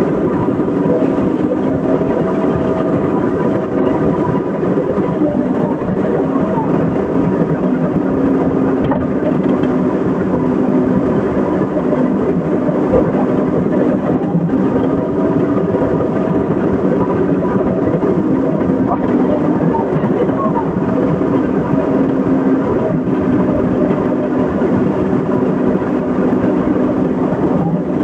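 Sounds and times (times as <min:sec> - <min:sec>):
excavator engine running: 0:00.0 - 0:28.0.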